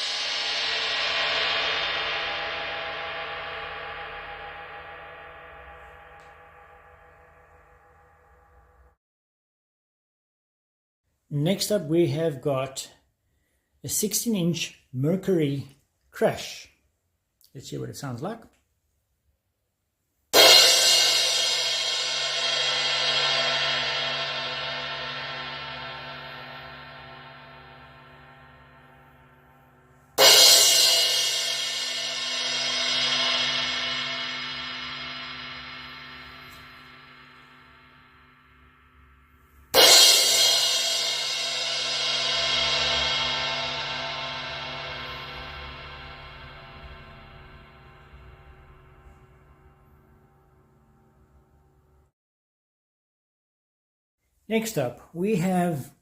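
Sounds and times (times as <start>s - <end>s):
crash cymbal ringing: 0.0s - 9.0s, 20.4s - 52.1s.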